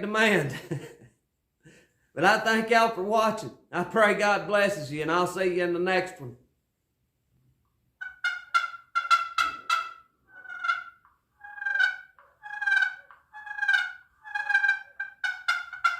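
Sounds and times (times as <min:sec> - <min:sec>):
turkey call yelps: 0:08.0 - 0:15.9.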